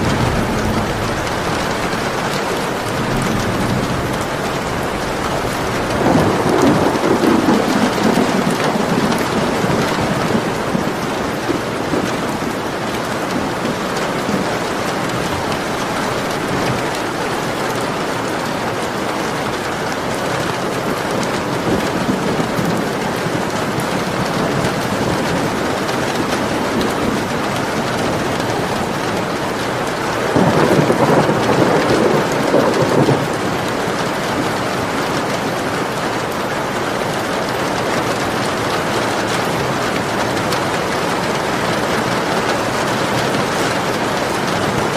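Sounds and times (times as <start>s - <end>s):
low rumble of thunder: 0.0s - 18.2s, 21.2s - 36.2s
heavy rain falling: 0.0s - 44.9s.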